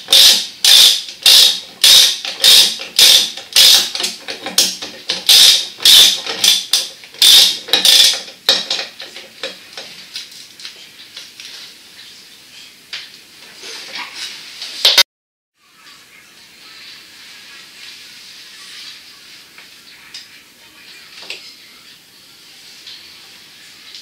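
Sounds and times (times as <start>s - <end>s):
mechanism rasping strokes: 0.1s - 8.2s.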